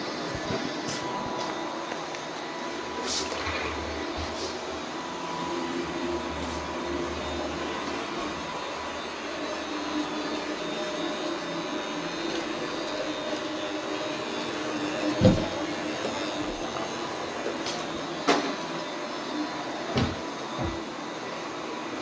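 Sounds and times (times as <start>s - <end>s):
robot vacuum cleaner humming: 0.0s - 22.0s.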